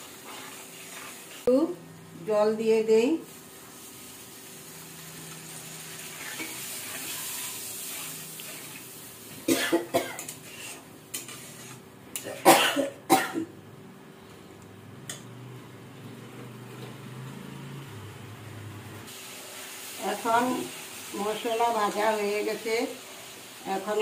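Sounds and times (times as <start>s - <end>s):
steel spatula stirring: 0.0s - 1.4s, 10.2s - 12.2s
spices sizzling in a pan: 0.0s - 1.6s, 2.9s - 9.5s, 19.1s - 24.0s.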